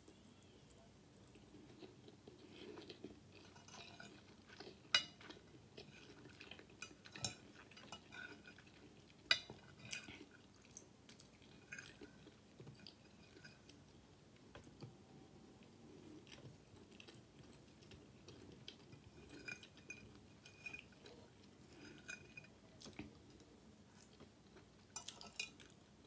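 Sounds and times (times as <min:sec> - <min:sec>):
chewing food: 0:00.1 - 0:26.0
metal fork clinking on a plate: 0:05.0 - 0:05.3.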